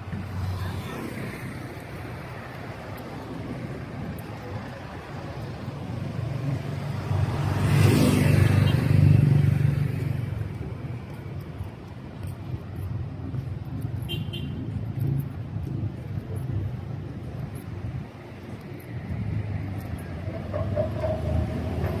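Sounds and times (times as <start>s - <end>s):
street traffic: 0.0s - 22.0s
vehicle passing close by: 6.1s - 10.4s, 19.4s - 22.0s.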